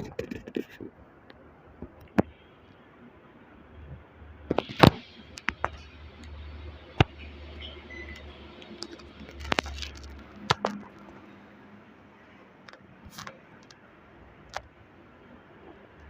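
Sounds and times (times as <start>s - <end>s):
sharp clicks and knocks: 4.5s - 7.3s, 8.2s - 11.2s.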